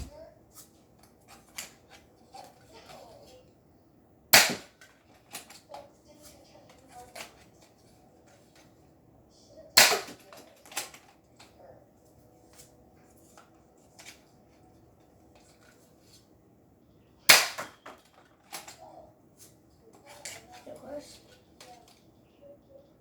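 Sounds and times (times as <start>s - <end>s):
toy blaster firing snaps: 4.4s - 4.7s, 9.8s - 10.9s, 17.3s - 17.8s.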